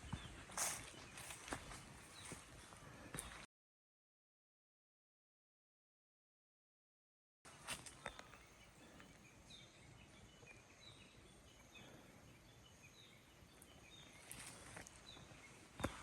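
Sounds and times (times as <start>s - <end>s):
faint footsteps: 0.0s - 3.5s
bird chirping: 7.5s - 16.0s.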